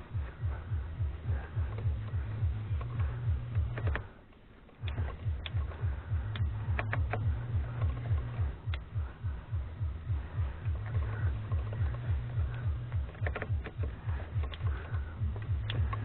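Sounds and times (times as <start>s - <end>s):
music with pulsing bass beat: 0.0s - 4.1s, 4.8s - 16.0s.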